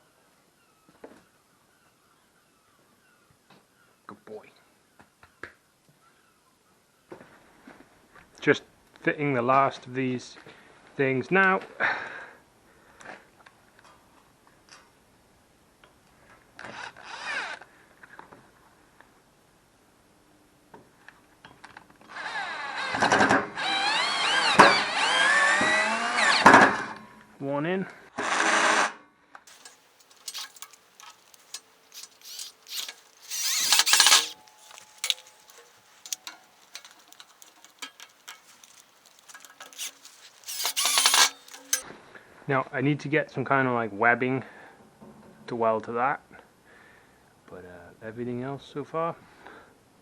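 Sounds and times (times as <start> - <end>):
metal clicks and knocks: 29.5 - 41.8
metal scraping: 29.5 - 41.8.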